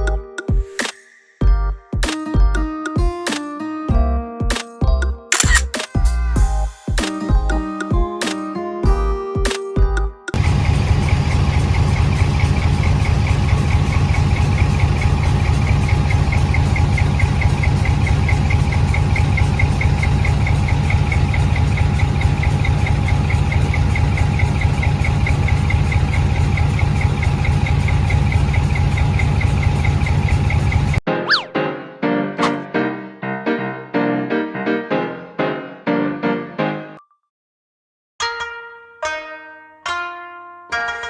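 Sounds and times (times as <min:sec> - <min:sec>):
vehicle engine idling: 0:10.4 - 0:31.0.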